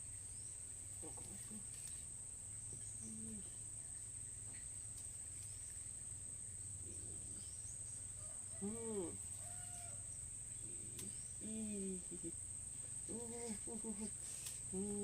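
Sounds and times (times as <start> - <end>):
insects droning: 0.0 - 15.0
steady low hum: 0.0 - 15.0
faint voice-like sound: 1.0 - 2.1, 2.7 - 3.7, 8.5 - 9.6, 10.6 - 12.4, 13.0 - 15.0.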